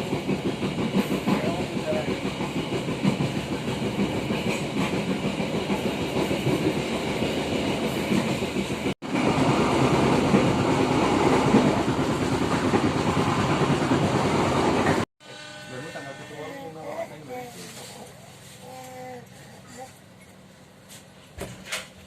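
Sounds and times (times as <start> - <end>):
train wheels clattering on rails: 0.0 - 15.0.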